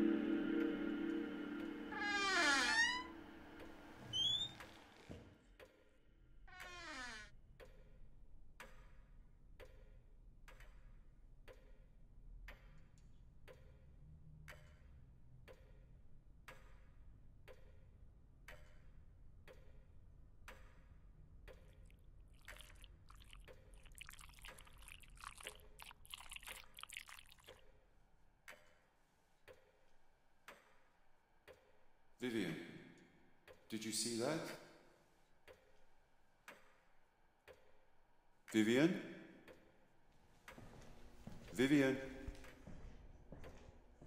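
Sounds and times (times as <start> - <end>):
low hum: 0.0 - 4.3
clock ticking: 20.5 - 27.6, 33.5 - 34.6, 37.4 - 37.7.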